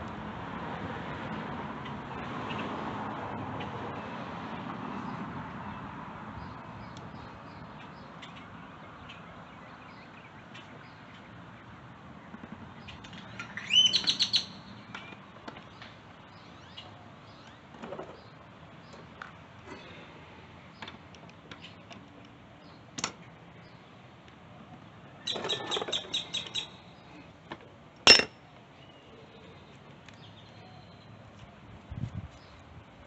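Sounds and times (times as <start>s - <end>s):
sharp clinks: 28.1s - 28.3s.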